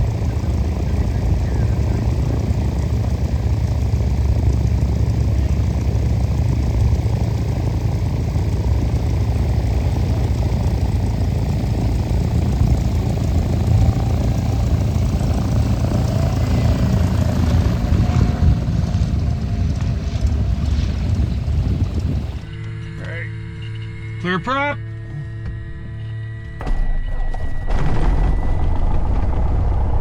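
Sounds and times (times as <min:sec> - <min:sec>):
propeller aircraft engine drone: 0:00.0 - 0:30.0.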